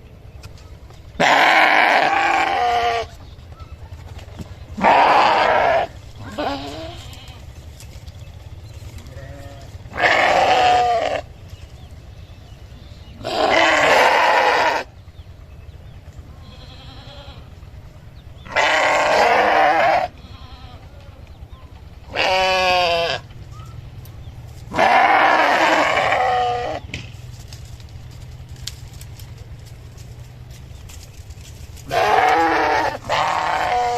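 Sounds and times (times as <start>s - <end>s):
steady low hum: 0.0s - 33.9s
sheep bleating: 1.2s - 3.2s, 4.8s - 7.6s, 9.0s - 11.3s, 13.2s - 14.9s, 16.4s - 17.6s, 18.4s - 21.2s, 22.1s - 23.3s, 24.7s - 26.8s, 31.8s - 33.9s.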